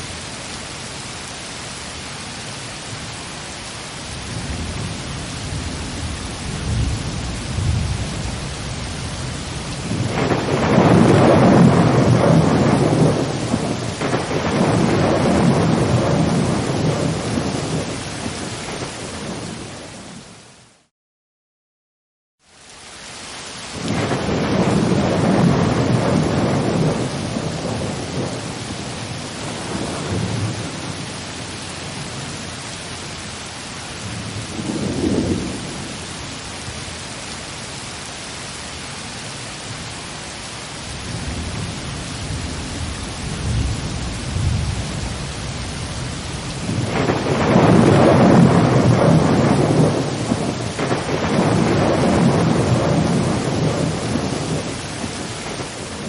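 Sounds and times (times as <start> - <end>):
heavy rain: 0.0 - 20.9, 22.4 - 56.0
thunder rolling: 9.8 - 18.0, 23.8 - 32.2, 34.0 - 36.0, 41.1 - 56.0.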